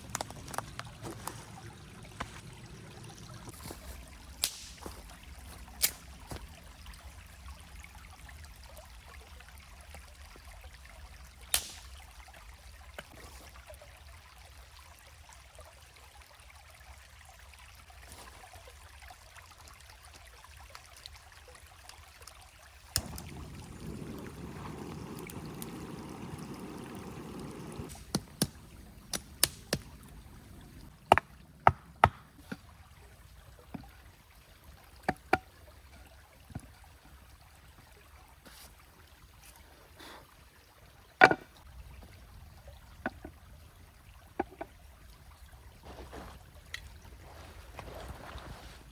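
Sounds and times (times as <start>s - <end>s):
water rushing: 0.0s - 8.6s, 22.9s - 47.6s
stream trickling: 0.0s - 48.9s.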